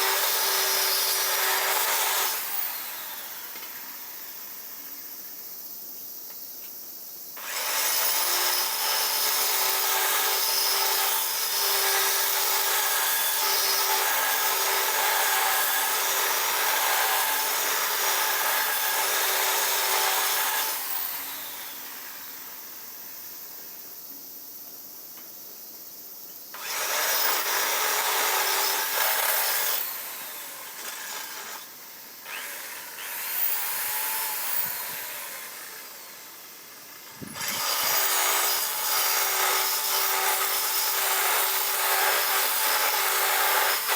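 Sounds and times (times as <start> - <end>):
electric power tool grinding: 0.0 - 3.8, 7.4 - 22.0, 26.6 - 43.9.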